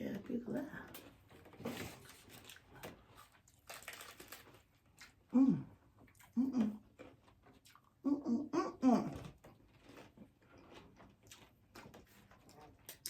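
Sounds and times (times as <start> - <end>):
crunchy taco being chewed: 1.6 - 5.3, 6.0 - 8.0, 9.3 - 13.0
short vocal sound: 5.3 - 6.8, 8.0 - 9.3.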